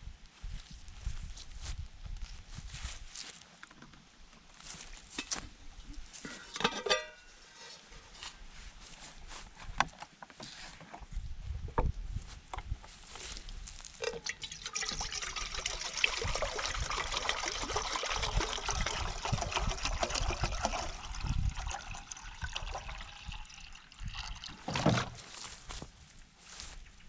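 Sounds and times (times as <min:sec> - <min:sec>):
water pouring into container: 0:14.0 - 0:25.2.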